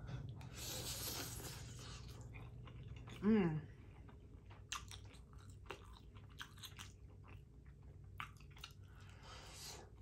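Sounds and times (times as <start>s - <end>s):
wet chewing and lip smacks: 4.0s - 9.1s.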